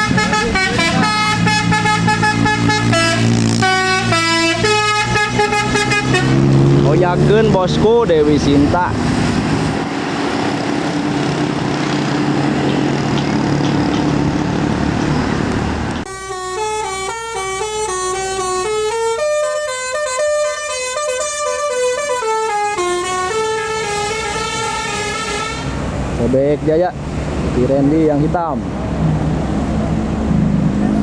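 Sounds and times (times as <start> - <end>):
musical horn melody: 0.0 - 6.8, 16.1 - 25.8
bus engine running: 0.0 - 31.0
road noise: 0.0 - 31.0.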